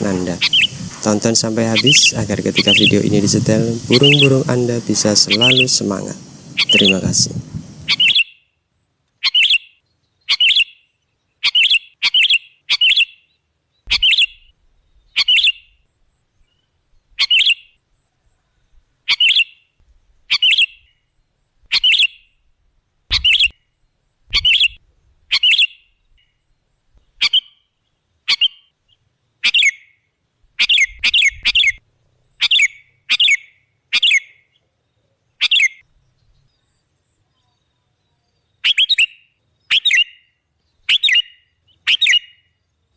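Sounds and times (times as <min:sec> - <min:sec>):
bulbul giving sharp calls: 0:00.0 - 0:08.2.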